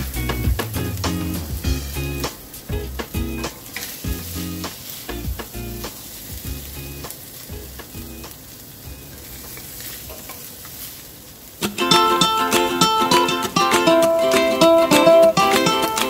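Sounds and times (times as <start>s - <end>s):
background music: 0.0s - 8.3s, 11.6s - 16.0s
food sizzling in a wok: 0.0s - 16.0s.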